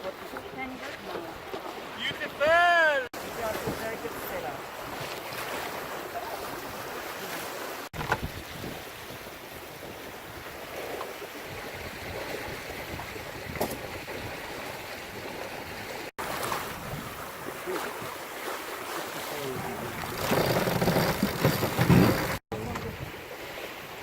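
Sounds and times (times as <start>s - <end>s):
water rushing along hull: 0.0s - 24.0s
wind buffeting microphone: 11.4s - 15.9s, 16.6s - 17.3s.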